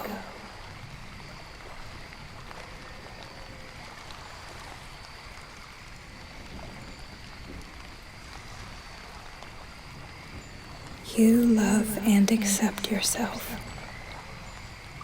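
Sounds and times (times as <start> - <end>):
faint high steady tones: 11.0 - 13.8.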